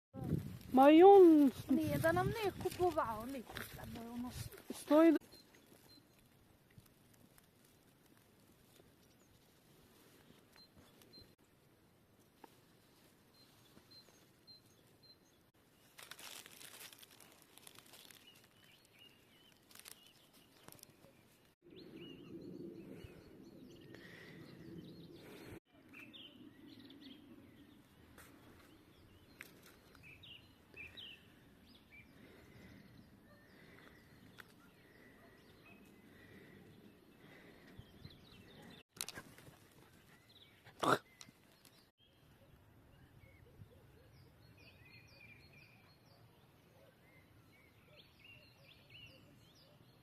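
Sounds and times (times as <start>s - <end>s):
songbirds chirping: 0.2s - 50.0s.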